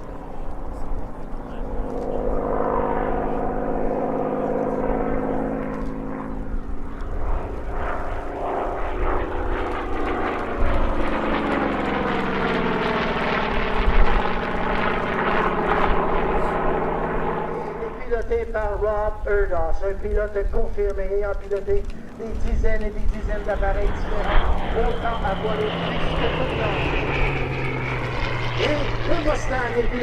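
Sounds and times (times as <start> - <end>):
propeller planes flying past: 0.0 - 30.0.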